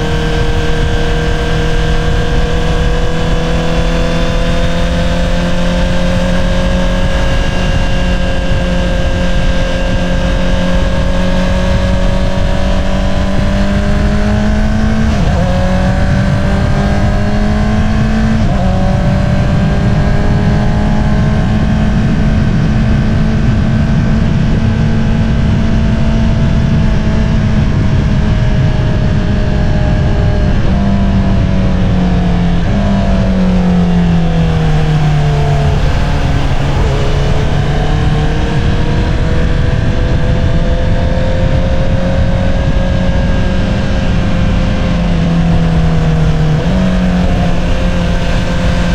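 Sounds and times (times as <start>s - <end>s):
motorcycle engine cruising: 0.0s - 48.9s.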